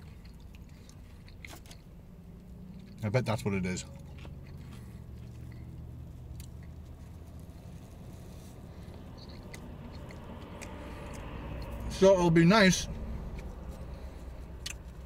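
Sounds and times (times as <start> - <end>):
man chewing: 0.0 - 3.0, 3.8 - 11.9, 12.9 - 15.0
steady low hum in car: 0.0 - 15.0.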